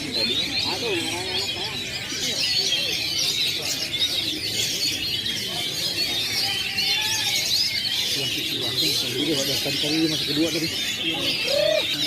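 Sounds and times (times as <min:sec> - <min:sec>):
songbirds chirping and trilling: 0:00.0 - 0:12.0.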